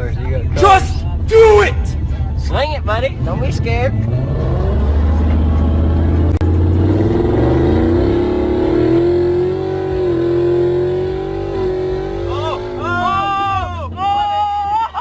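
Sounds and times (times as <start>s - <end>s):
car engine revving hard: 4.1s - 13.6s.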